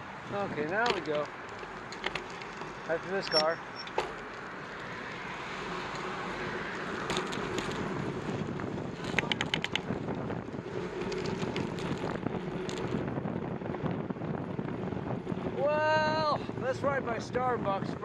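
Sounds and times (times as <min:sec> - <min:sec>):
wind noise on microphone: 0:05.8 - 0:18.0
quick ticks: 0:09.1 - 0:09.9.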